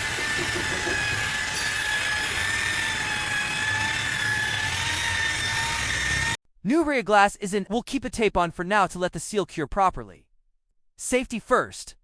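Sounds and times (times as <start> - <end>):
polisher rubbing hiss: 0.0 - 2.3
car polisher motor whine: 0.0 - 6.4.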